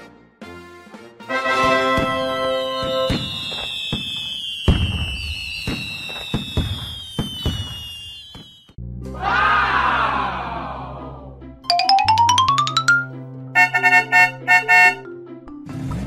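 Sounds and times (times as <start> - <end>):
firework pops and bangs: 1.6 - 8.8
firework whistles: 1.8 - 8.8.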